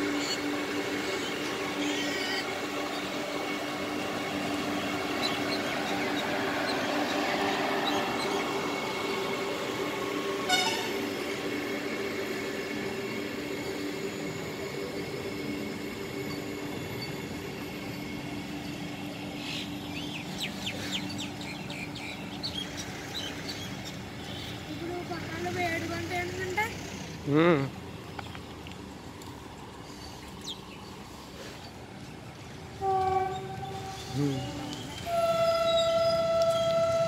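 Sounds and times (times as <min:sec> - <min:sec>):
electric train passing: 0:00.0 - 0:37.0
birds chirping: 0:04.0 - 0:09.5, 0:16.2 - 0:27.3, 0:29.6 - 0:37.0.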